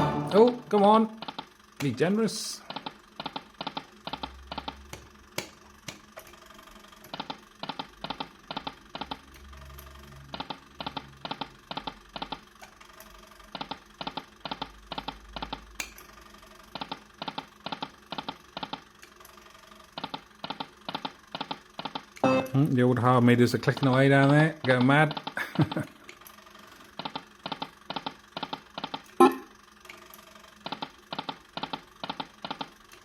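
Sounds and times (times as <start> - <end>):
faint low machine hum: 0.0 - 33.0
machine meters clicking rapidly: 1.1 - 6.4, 7.0 - 9.5, 10.1 - 12.5, 13.4 - 16.0, 16.7 - 19.2, 19.9 - 22.3, 23.5 - 25.4, 26.1 - 29.3, 29.9 - 33.0.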